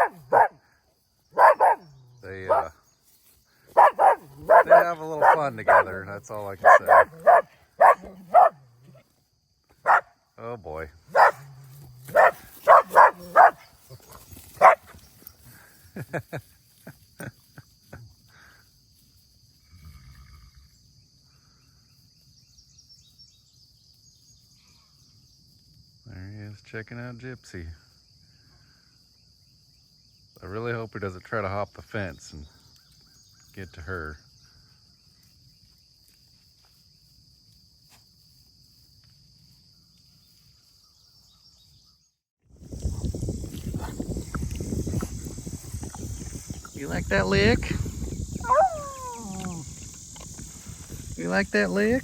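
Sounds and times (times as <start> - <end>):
insects buzzing: 0.0 - 26.5, 42.5 - 52.0
rough rumbling microphone noise: 42.5 - 51.6.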